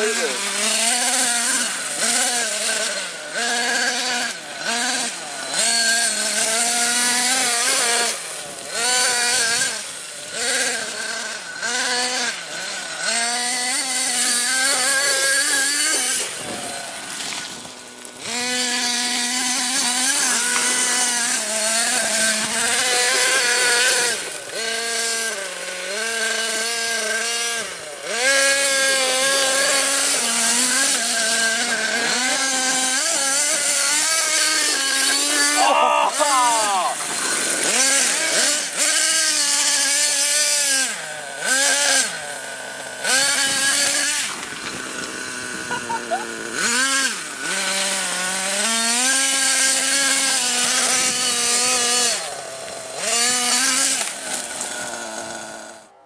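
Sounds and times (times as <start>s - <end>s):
remote-control car motor whining: 0.0s - 56.0s.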